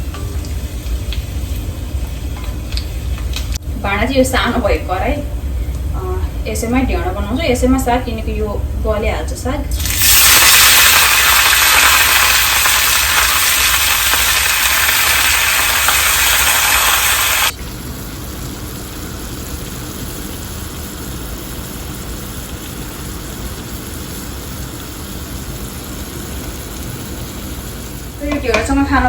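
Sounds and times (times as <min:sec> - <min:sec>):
hot oil sizzling in a pan: 0:09.7 - 0:29.0
steady hiss: 0:09.8 - 0:29.0.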